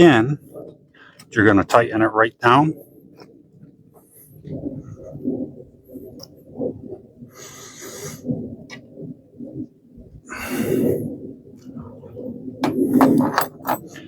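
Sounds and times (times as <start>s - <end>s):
heavy breaths: 7.3s - 8.4s, 10.3s - 11.2s
low rumbling handling noise: 11.6s - 14.0s.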